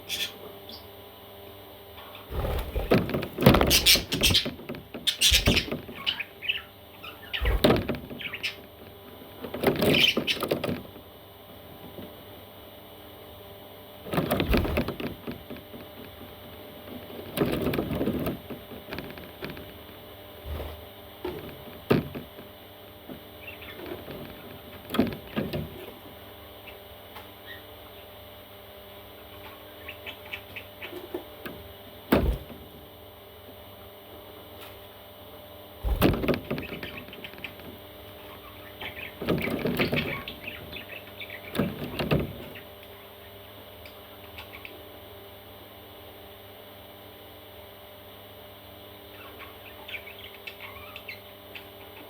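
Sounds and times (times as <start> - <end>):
parrot chicks chirping: 0.0 - 1.0, 2.0 - 8.7, 9.8 - 10.7, 23.3 - 25.4, 26.0 - 28.0, 29.2 - 31.4, 36.6 - 45.0, 48.8 - 52.0.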